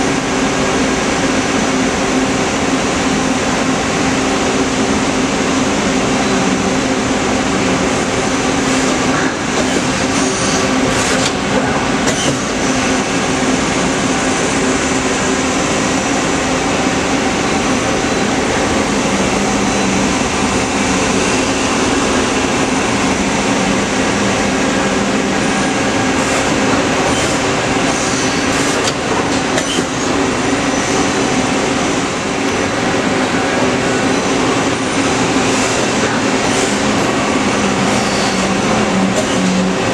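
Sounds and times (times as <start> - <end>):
lathe humming: 0.0 - 39.9.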